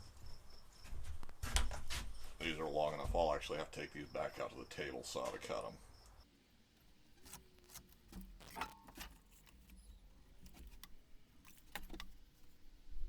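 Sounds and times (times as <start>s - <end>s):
wood pieces clicking and tapping: 7.2s - 12.8s.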